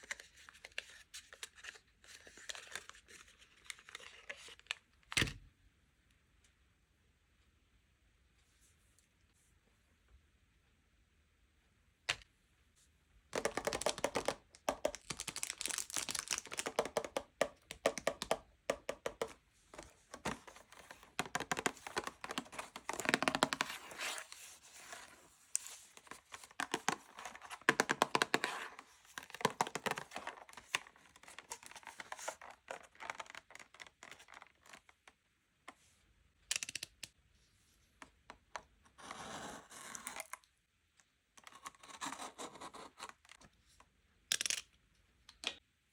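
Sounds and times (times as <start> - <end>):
wrappers crinkling and tearing: 15.0 - 16.7.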